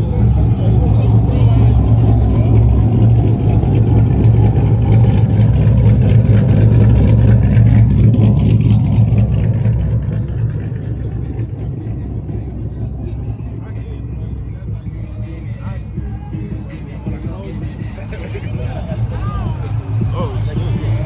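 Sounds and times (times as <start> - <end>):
car engine rumbling: 0.0 - 21.0.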